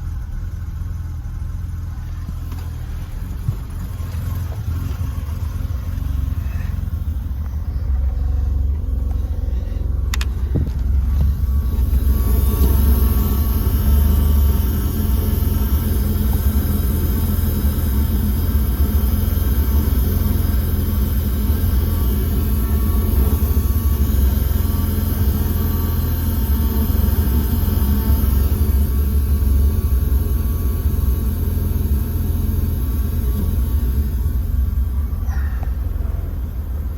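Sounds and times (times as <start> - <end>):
car engine rumbling: 0.0 - 36.9
click: 10.1 - 11.9.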